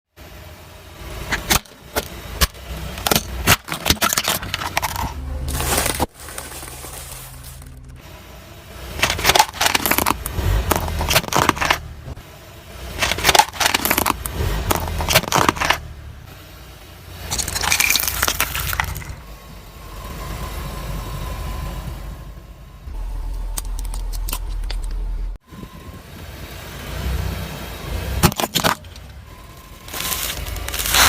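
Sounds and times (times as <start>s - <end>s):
tyre crushing crunchy objects: 1.3s - 8.0s, 9.0s - 11.9s, 13.0s - 15.9s, 17.2s - 19.2s, 29.6s - 31.0s.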